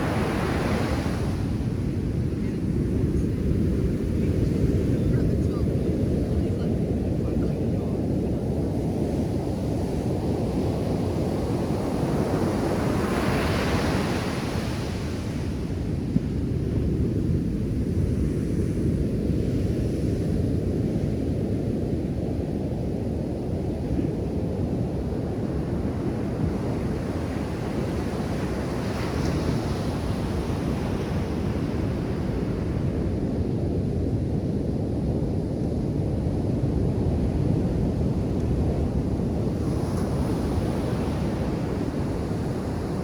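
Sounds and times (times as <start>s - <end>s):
wave breaking and washing in: 0.0s - 8.2s
ocean surf rumbling: 0.0s - 8.4s.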